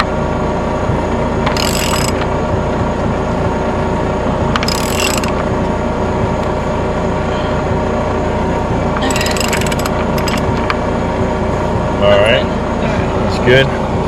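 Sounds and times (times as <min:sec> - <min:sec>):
rotary hammer drill boring into concrete: 0:01.5 - 0:02.2, 0:04.6 - 0:05.4, 0:09.0 - 0:10.5
sharp clicks: 0:01.5 - 0:02.2, 0:04.6 - 0:05.4, 0:09.0 - 0:10.5.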